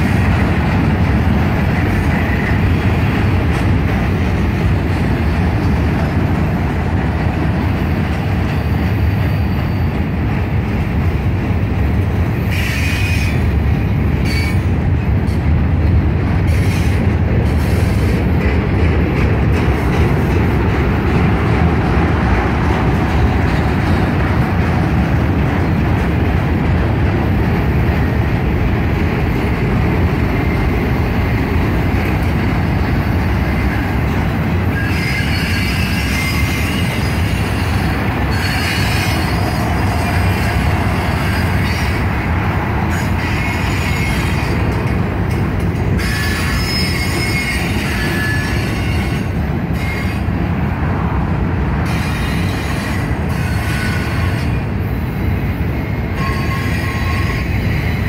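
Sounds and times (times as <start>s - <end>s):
train wheels rumbling on rail: 0.0s - 58.0s
high-pitched wheel squeal: 34.7s - 42.0s, 46.0s - 49.2s.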